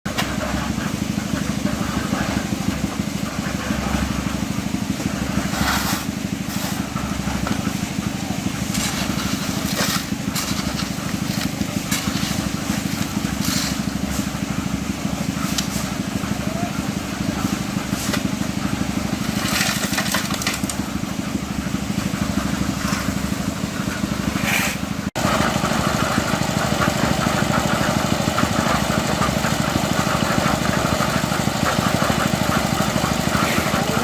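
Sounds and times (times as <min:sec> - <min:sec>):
construction machinery engine running: 0:00.1 - 0:34.0
clattering and scraping: 0:08.5 - 0:14.4, 0:17.9 - 0:20.8.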